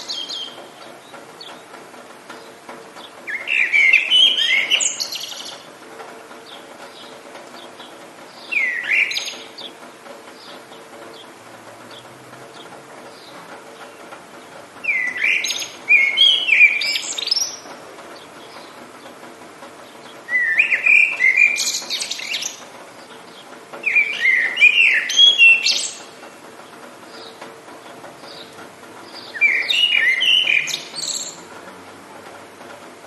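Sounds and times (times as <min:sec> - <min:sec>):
songbird warbling: 0:00.0 - 0:01.6, 0:03.0 - 0:05.7, 0:06.5 - 0:09.8, 0:14.8 - 0:18.8, 0:19.8 - 0:26.2, 0:27.1 - 0:31.5
steady background hiss: 0:00.0 - 0:33.0.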